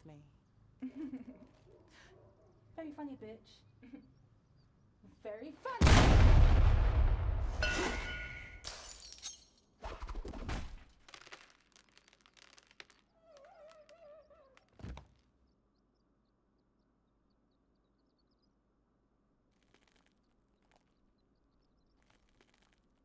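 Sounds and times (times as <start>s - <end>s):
heavy hit: 5.8s - 8.6s
thud: 5.8s - 8.7s
loud crash: 5.8s - 8.8s
breaking and shattering: 6.1s - 13.8s
small clatters: 10.8s - 15.4s.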